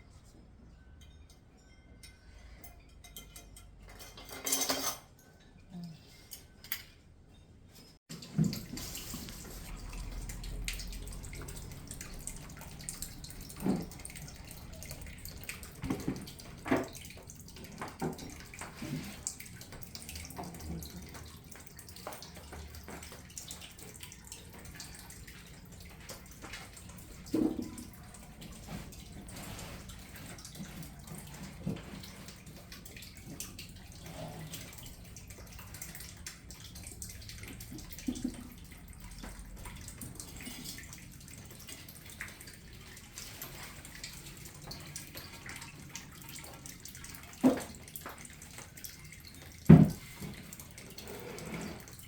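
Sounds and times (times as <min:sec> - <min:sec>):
knocks and clinks of objects: 0:00.3 - 0:08.9
water running and splashing: 0:08.1 - 0:52.0.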